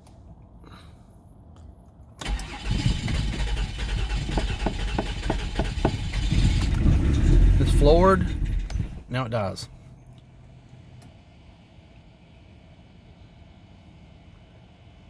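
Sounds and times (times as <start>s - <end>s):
car engine cranking: 2.2s - 9.2s.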